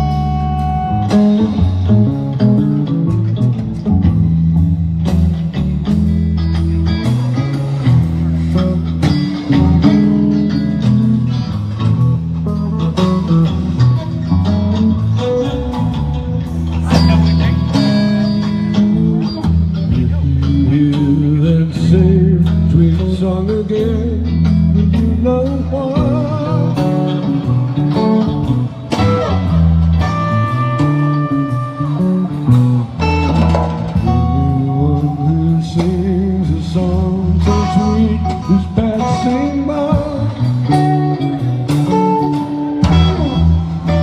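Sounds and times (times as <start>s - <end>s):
electric bass line: 0.0s - 44.0s
electric guitar lines: 0.0s - 44.0s
live band music: 0.0s - 44.0s
person singing: 19.2s - 29.5s, 34.0s - 44.0s.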